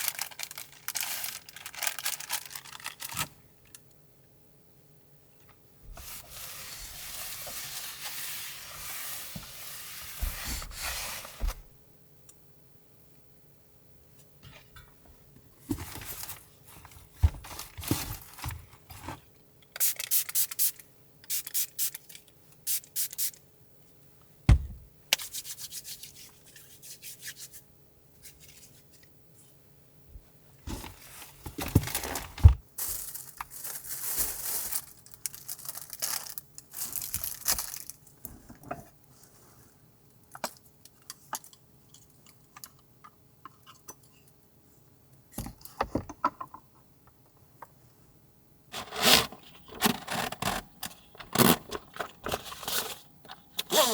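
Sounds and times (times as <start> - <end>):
rubbing and rustling handling noise: 0.0 - 3.4, 5.8 - 11.8, 15.6 - 20.7, 25.1 - 40.0, 48.7 - 53.9.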